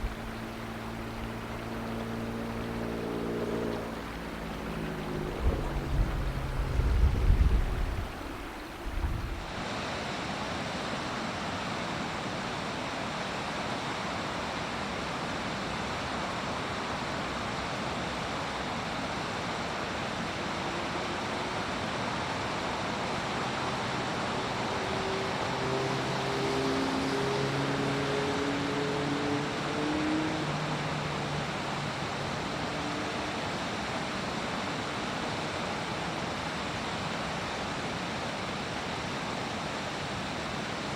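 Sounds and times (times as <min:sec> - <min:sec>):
wind rumble on microphone: 0:00.0 - 0:09.6
fast-flowing river water: 0:00.0 - 0:40.9.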